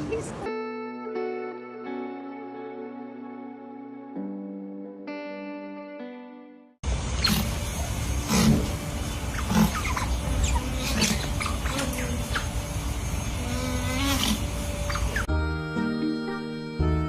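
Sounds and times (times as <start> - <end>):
animal short calls: 7.2 - 12.6, 13.4 - 15.3
animal wavering call: 7.2 - 15.3.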